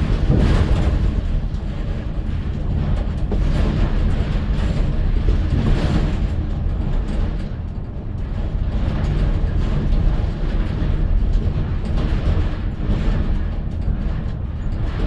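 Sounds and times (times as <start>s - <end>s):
road rumble: 0.0s - 4.3s
engine drone: 0.0s - 5.2s.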